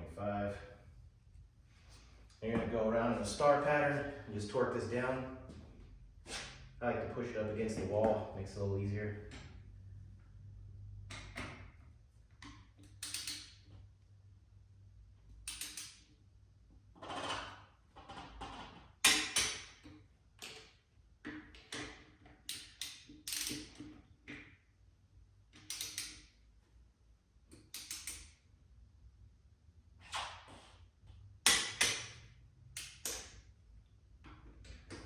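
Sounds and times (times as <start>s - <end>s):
torque wrench ratcheting and clicking: 12.9s - 13.6s, 25.6s - 26.2s.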